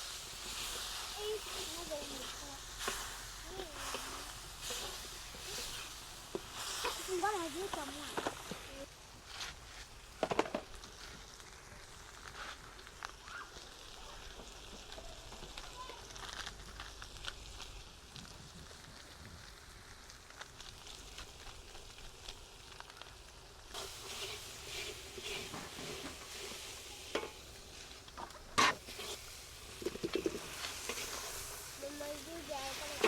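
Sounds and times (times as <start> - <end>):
food sizzling in a pot: 0.0 - 33.0
spoon scraping and knocking pot: 28.5 - 31.3.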